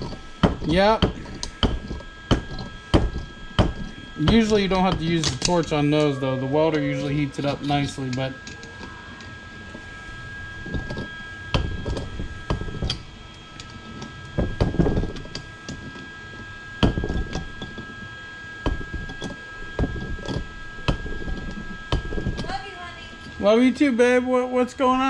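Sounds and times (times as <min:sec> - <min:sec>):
tools knocking and clunking: 0:00.0 - 0:05.8, 0:13.6 - 0:16.0, 0:16.8 - 0:17.8, 0:18.6 - 0:22.5
faint steady hum: 0:00.0 - 0:25.0
thin high whine: 0:00.0 - 0:25.0.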